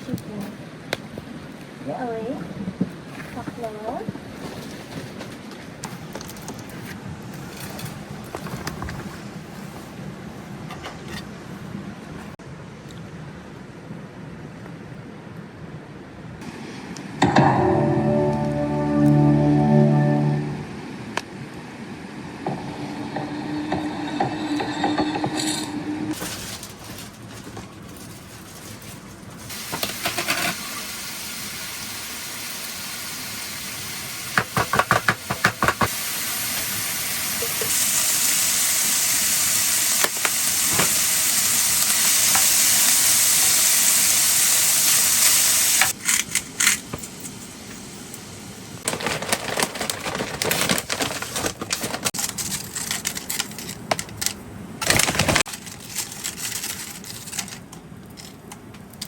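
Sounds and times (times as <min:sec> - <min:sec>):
food sizzling in a pan: 0:29.5 - 0:46.0.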